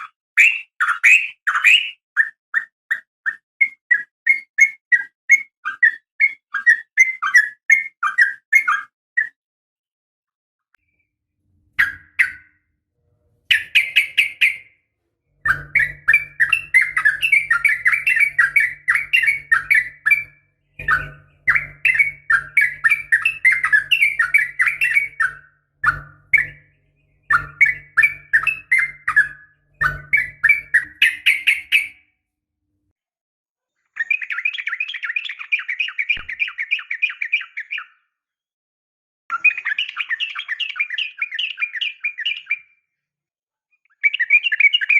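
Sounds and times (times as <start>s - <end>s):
bird chattering calls: 15.4s - 32.0s.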